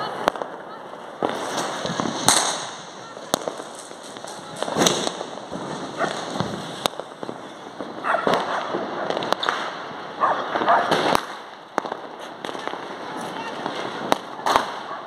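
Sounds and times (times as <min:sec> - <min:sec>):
firecracker bangs: 0:00.0 - 0:15.0
fireworks crackling and rumbling: 0:00.0 - 0:15.0.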